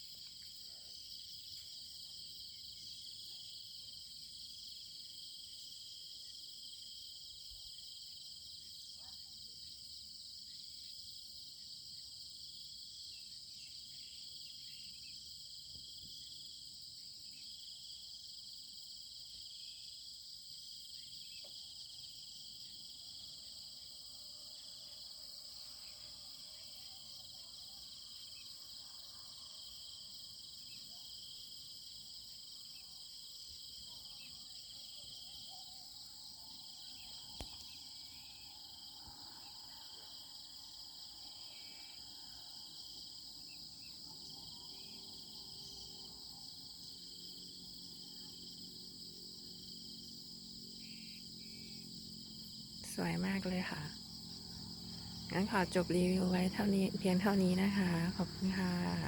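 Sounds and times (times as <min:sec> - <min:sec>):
insects chirring: 0:20.6 - 0:59.0
small click: 0:37.4 - 0:37.7.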